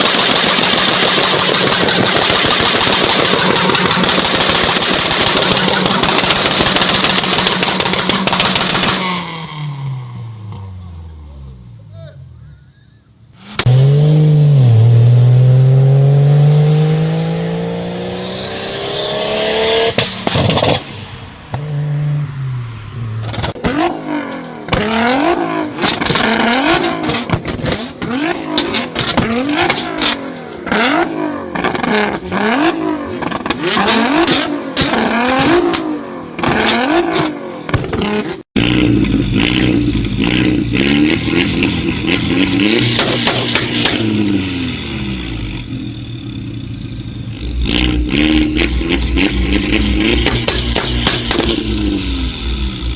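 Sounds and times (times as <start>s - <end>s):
engine running steadily: 0.0s - 9.0s, 38.7s - 52.9s
exhaust pops and bangs: 0.0s - 9.2s, 19.8s - 21.6s, 24.7s - 40.0s, 41.1s - 44.5s, 47.3s - 52.4s
car engine revving: 0.0s - 12.5s, 13.2s - 52.9s.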